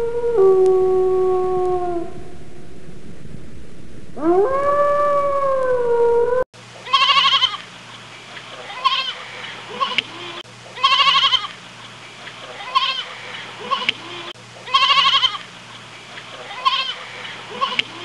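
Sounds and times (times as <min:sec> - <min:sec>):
wolf howling: 0:00.0 - 0:02.9, 0:04.1 - 0:06.5
goat kid bleating: 0:06.9 - 0:07.6, 0:08.6 - 0:11.6, 0:12.6 - 0:15.4, 0:16.4 - 0:18.0.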